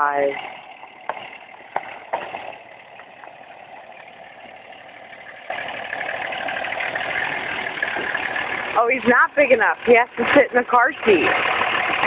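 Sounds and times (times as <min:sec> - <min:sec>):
truck motor running: 0:00.0 - 0:12.0.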